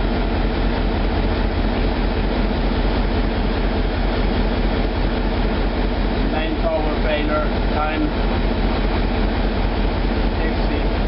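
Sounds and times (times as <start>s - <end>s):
marine diesel engine drone: 0.0s - 11.0s.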